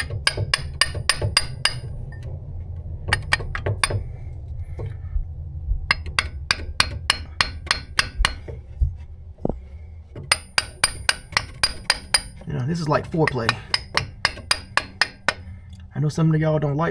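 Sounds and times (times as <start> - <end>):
hammer tapping on metal: 0.0 - 2.3, 3.1 - 4.1, 5.9 - 8.6, 10.2 - 15.5.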